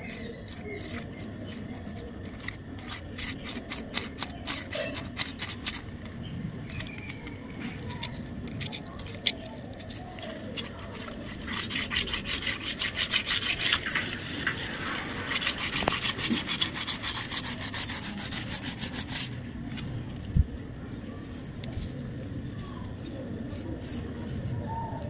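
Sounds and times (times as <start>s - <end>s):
brush scrubbing bearing rollers: 0.0s - 19.4s, 22.5s - 25.0s.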